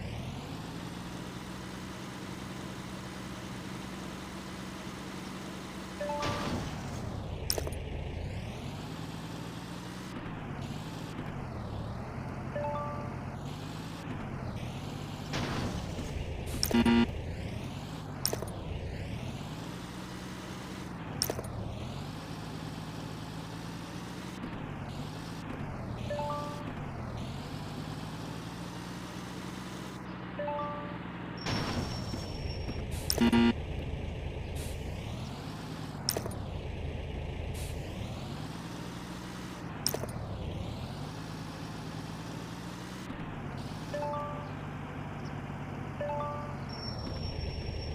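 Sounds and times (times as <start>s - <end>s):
sharp clicks: 16.5s - 17.0s, 18.2s - 18.6s, 35.7s - 36.5s, 39.8s - 40.2s
loud buzzing blip: 16.6s - 17.1s, 33.1s - 33.6s.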